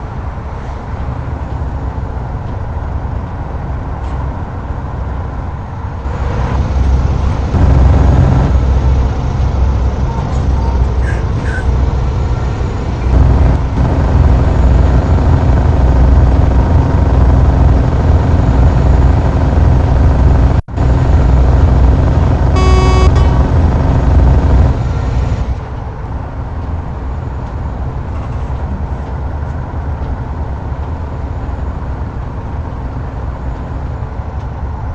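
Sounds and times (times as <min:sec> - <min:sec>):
road traffic: 0:00.0 - 0:34.9
vehicle horn: 0:22.5 - 0:23.6.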